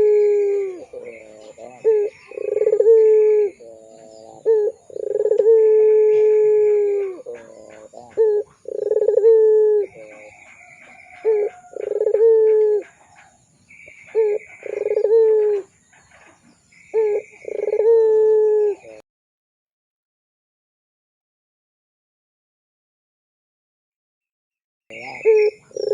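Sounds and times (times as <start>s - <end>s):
dove cooing: 0.0s - 19.0s, 24.9s - 25.9s.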